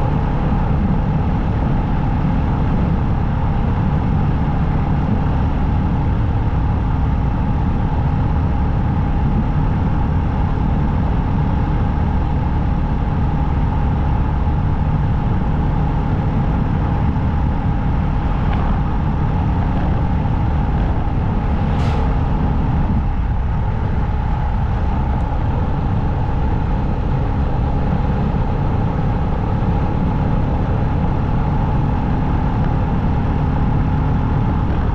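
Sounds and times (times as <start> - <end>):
motorcycle engine drone: 0.0 - 34.9
road noise: 0.0 - 34.9
sharp hiss: 21.7 - 22.4.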